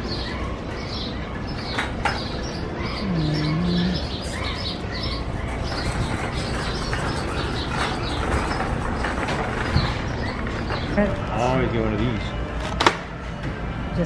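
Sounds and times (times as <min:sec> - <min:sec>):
small birds chirping: 0:00.0 - 0:12.4
shopping cart clanking: 0:04.1 - 0:12.9.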